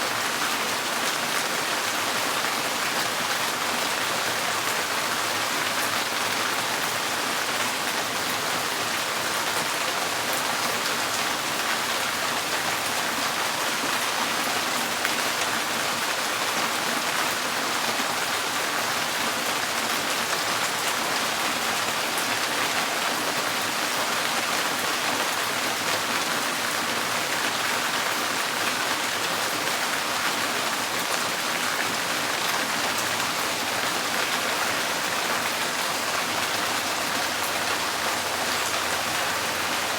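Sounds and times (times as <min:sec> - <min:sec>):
rain on a tin roof: 0:00.0 - 0:39.9.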